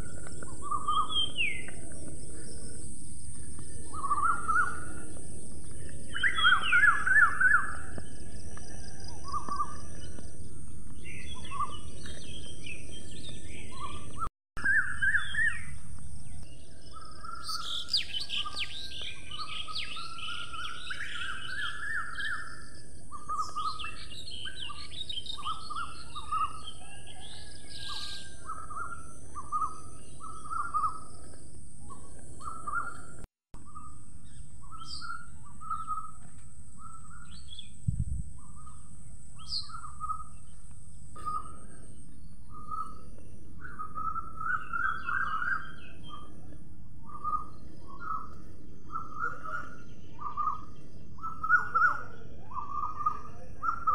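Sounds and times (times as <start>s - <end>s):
birds chirping and singing: 0.0s - 53.9s
outdoor background hiss: 14.6s - 26.8s, 27.8s - 53.9s.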